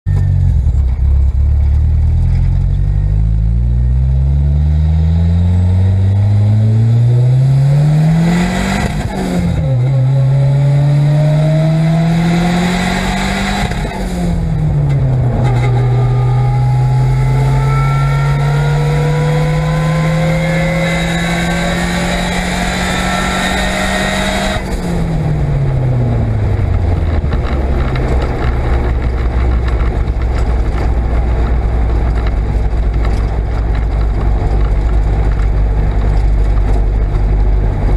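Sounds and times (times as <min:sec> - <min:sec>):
gearbox whine: 0:00.1 - 0:04.3
turbo engine accelerating: 0:00.1 - 0:37.9.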